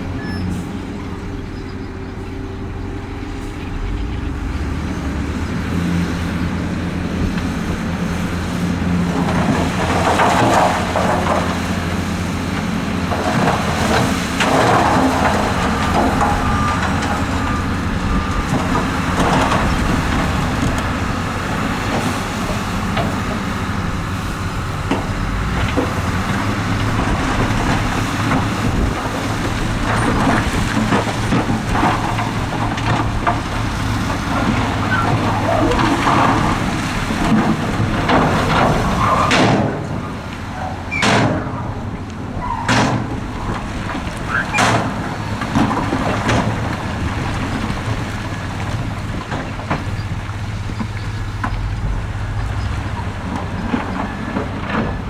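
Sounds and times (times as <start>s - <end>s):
heavy diesel machinery running: 0.0s - 55.0s.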